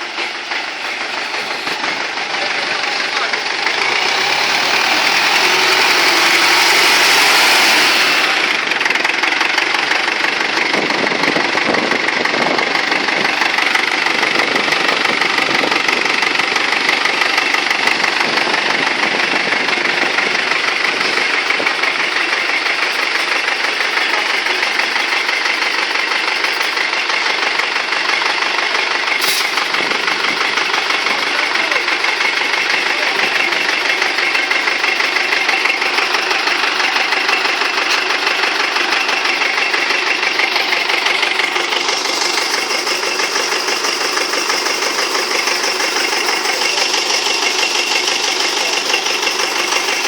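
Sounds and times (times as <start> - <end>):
tractor diesel engine idling: 0.0 - 50.0.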